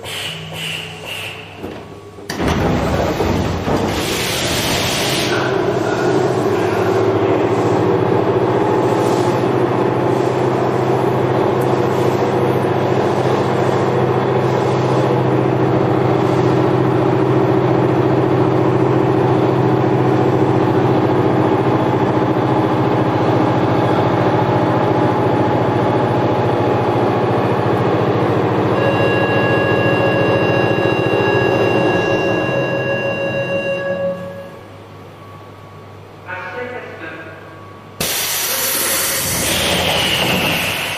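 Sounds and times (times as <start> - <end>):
subway car rumble: 0.0 - 40.9
high-pitched tone: 28.7 - 34.7.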